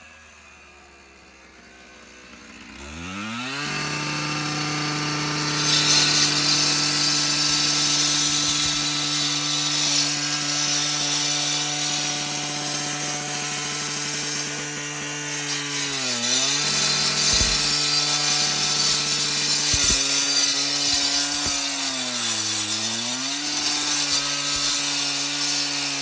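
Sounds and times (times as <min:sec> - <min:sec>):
concrete saw whining: 0:00.0 - 0:26.0
saw blade grinding concrete: 0:00.0 - 0:26.0.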